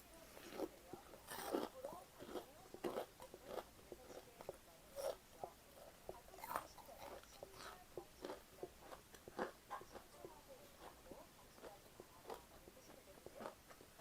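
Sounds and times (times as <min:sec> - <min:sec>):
person chewing food: 0:00.3 - 0:14.0.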